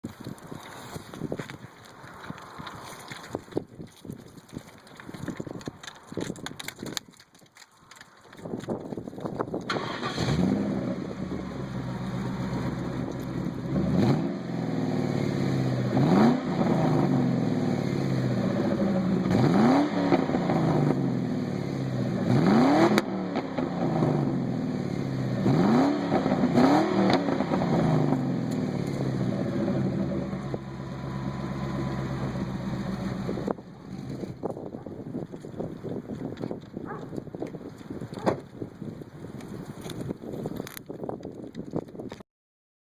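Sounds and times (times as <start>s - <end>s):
car engine idling: 9.7s - 16.0s, 27.4s - 34.4s
engine throttle blips: 9.7s - 34.4s.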